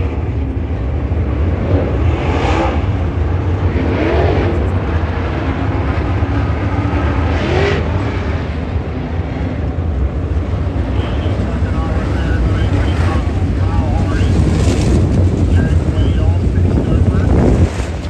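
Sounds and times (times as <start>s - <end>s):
race car engines rumbling: 0.0s - 18.0s.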